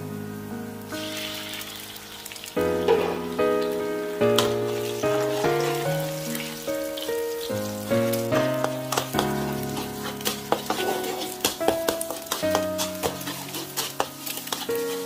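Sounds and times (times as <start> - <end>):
background music: 0.0 - 15.0
eggs sizzling in oil: 0.8 - 15.0
spatula scraping a wok: 8.1 - 15.0.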